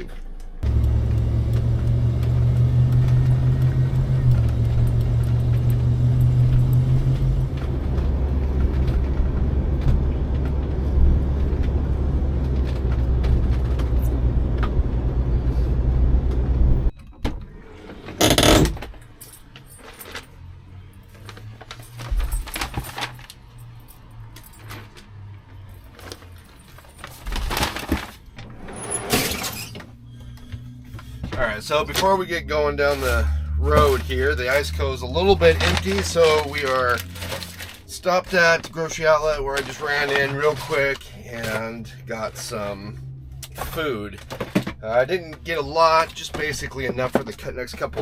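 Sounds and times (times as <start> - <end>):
van driving rumble: 0.0 - 48.0
rustling clatter: 21.1 - 23.8, 25.8 - 32.1, 35.2 - 42.6.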